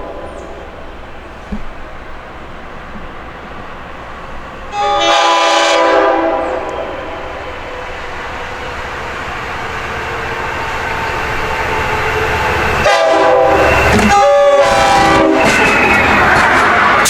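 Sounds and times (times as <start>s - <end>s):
diesel train rumble: 0.0s - 17.0s
rail noise: 0.0s - 17.0s
train air horn blasts: 4.7s - 7.6s, 11.9s - 17.0s.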